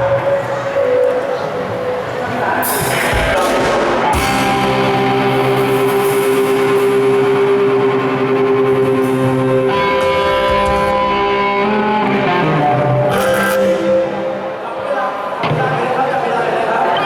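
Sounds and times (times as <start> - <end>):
ringing guitar chords: 0.0 - 15.7
rock band playing: 1.4 - 14.8.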